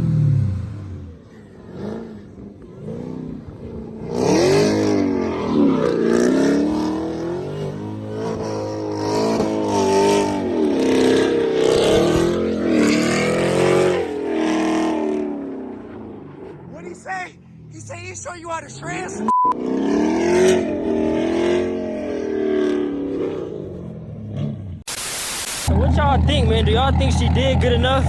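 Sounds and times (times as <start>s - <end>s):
car engine revving hard: 0.0s - 15.6s, 19.2s - 23.5s.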